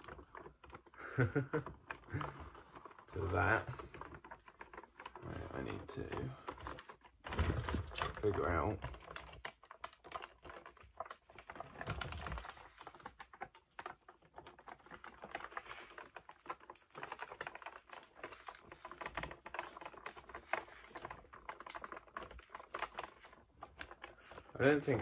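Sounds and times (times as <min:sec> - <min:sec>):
hands clicking plastic parts: 0:00.0 - 0:25.0.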